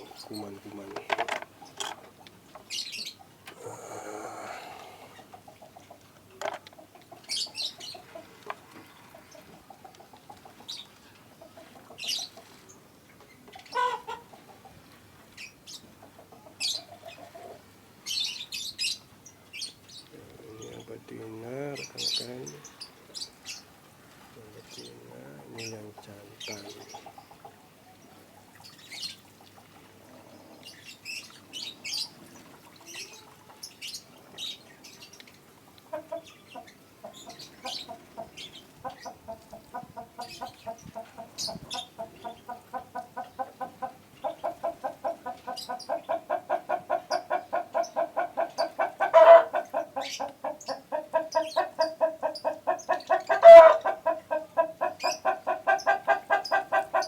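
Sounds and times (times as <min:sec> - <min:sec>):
chicken clucking: 0:03.2 - 0:12.6, 0:13.5 - 0:14.8, 0:24.7 - 0:27.8, 0:35.8 - 0:57.0
chicken squawks: 0:13.7 - 0:14.3, 0:35.9 - 0:57.0.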